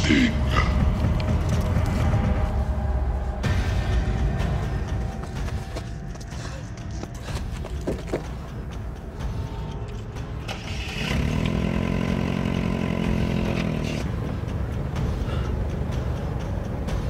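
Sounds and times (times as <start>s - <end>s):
car engine running: 0.0s - 17.0s
car engine cranking: 6.8s - 17.0s.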